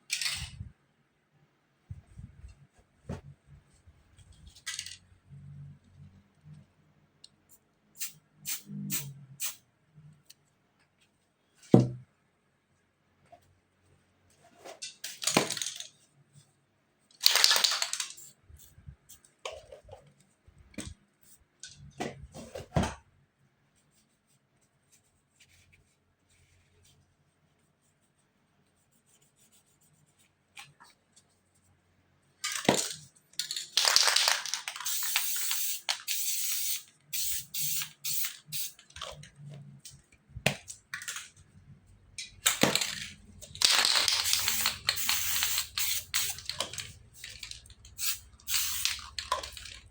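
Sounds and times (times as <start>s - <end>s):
spray-paint can hissing: 8.0s - 9.6s, 34.8s - 38.8s, 44.0s - 46.5s, 48.0s - 49.0s.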